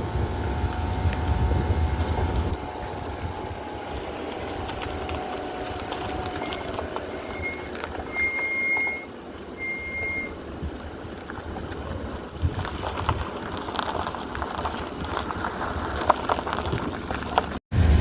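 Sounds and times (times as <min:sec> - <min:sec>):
suspension knocks and rattles: 0:00.0 - 0:17.6
car engine and drivetrain hum: 0:00.0 - 0:18.0
thin high squeal: 0:05.6 - 0:10.4.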